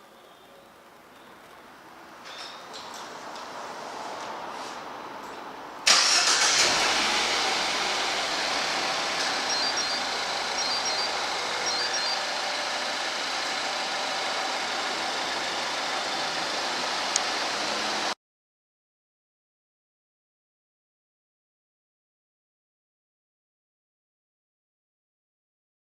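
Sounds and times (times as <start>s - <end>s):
car engine starting and idling: 5.8s - 18.2s.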